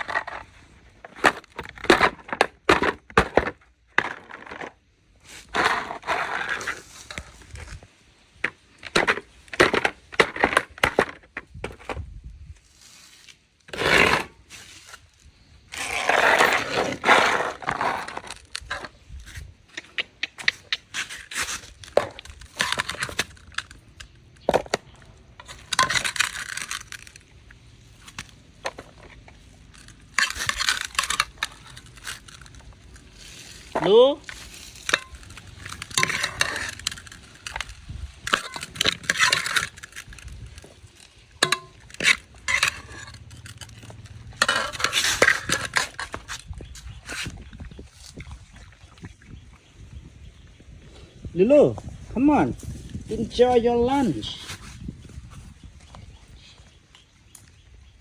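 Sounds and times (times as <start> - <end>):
scraping of dog bowl: 41.4 - 46.4.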